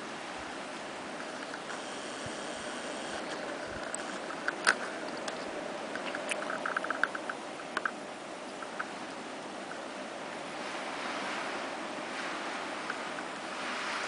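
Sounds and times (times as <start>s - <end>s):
blizzard wind hissing: 0.0s - 14.0s
small ticks and clicks: 1.2s - 9.0s.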